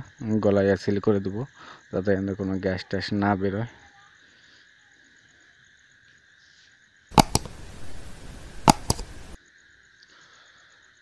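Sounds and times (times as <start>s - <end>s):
crickets chirring: 0.0s - 11.0s
sharp clicks: 7.1s - 9.4s.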